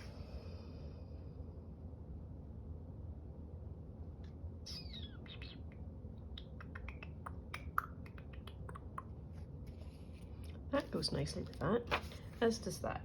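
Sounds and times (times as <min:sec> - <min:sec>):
bird chirping: 0:04.7 - 0:08.8.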